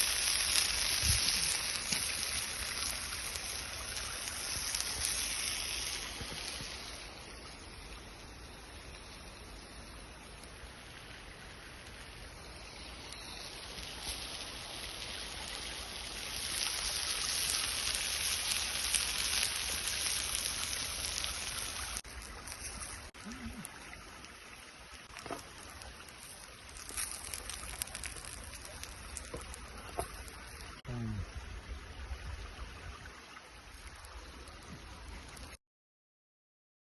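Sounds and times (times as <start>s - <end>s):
water splashing over stones: 0.0s - 7.9s, 11.2s - 30.8s.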